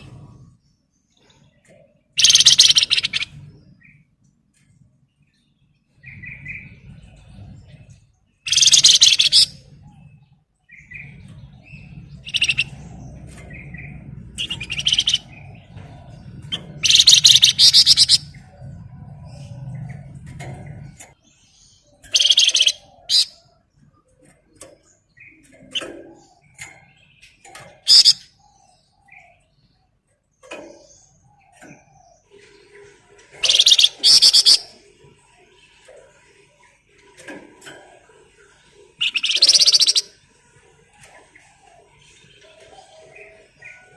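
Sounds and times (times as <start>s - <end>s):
low steady hum: 0.0s - 8.4s
bird chirps: 0.0s - 37.3s, 38.4s - 43.9s
songbird trilling: 2.2s - 3.4s, 8.4s - 9.7s, 10.8s - 18.6s, 22.0s - 23.4s, 27.8s - 28.6s, 33.4s - 34.8s, 39.0s - 40.2s.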